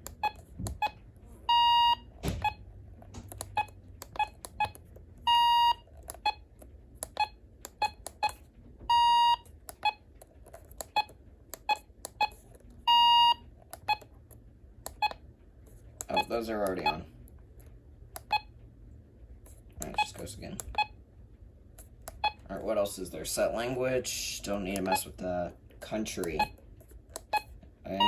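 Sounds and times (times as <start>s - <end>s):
key beeps: 0.0s - 2.6s, 3.3s - 10.0s, 10.7s - 14.1s, 14.9s - 15.2s, 16.1s - 17.0s, 18.2s - 18.5s, 19.8s - 21.0s, 22.1s - 22.5s, 24.7s - 25.1s, 26.2s - 28.0s
long steady beeps: 0.2s - 2.6s, 3.4s - 6.4s, 7.1s - 10.0s, 11.7s - 14.0s.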